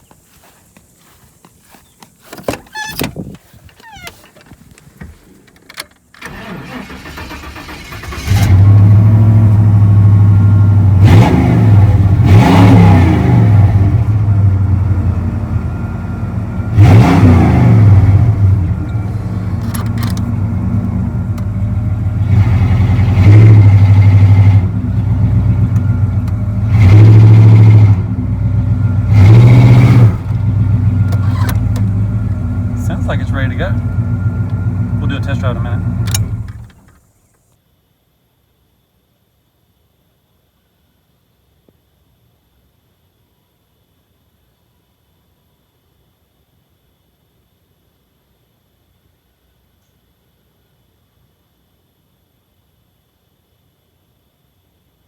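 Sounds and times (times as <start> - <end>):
engine cranking: 2.4 - 8.9, 16.8 - 21.7, 29.1 - 32.1, 32.8 - 37.0
truck engine revving: 6.3 - 36.8.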